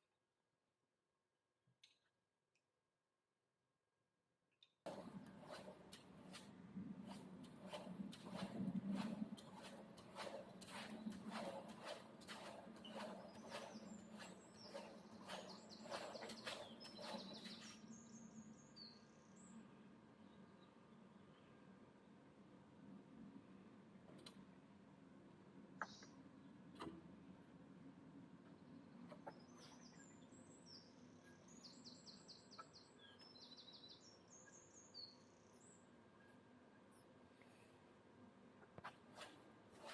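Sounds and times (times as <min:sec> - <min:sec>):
small bird chirping: 0:12.8 - 0:18.2, 0:29.3 - 0:36.4.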